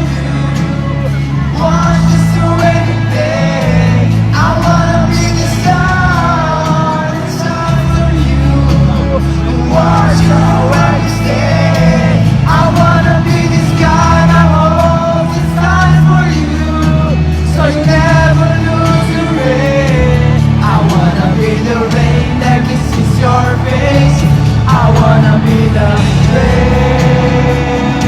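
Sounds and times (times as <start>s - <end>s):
live pop-rock band playing: 0.0s - 28.0s
man singing: 0.0s - 28.0s.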